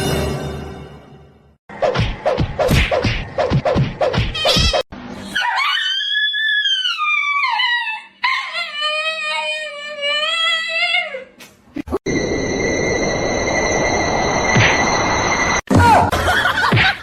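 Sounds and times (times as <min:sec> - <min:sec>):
dog howling: 0:05.3 - 0:11.2.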